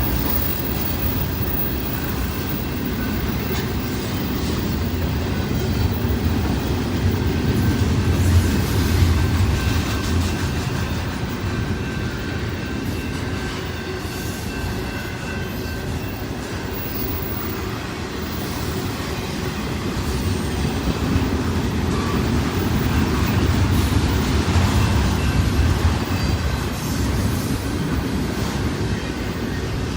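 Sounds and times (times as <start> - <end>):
steel wheels rumbling on rail: 0.0 - 29.9.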